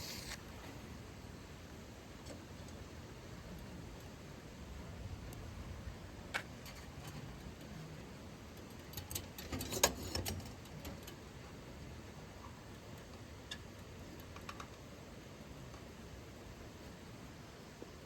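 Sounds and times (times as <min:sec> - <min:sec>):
low steady background noise: 0:00.0 - 0:18.0
small clicks and taps: 0:13.0 - 0:14.9.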